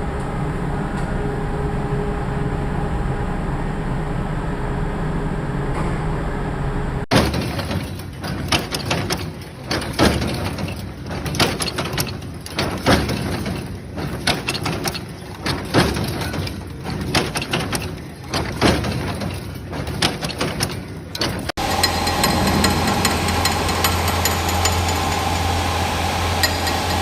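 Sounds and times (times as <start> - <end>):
machinery noise: 0.0 - 27.0
factory knocks and clatter: 5.6 - 27.0.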